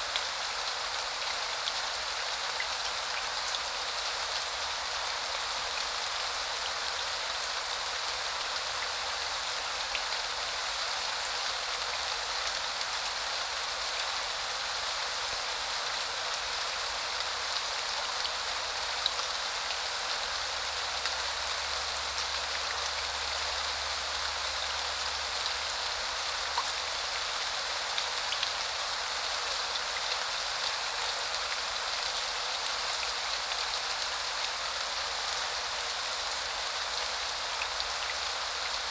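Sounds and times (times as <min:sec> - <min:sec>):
raindrops ticking on surfaces: 0:26.5 - 0:26.8.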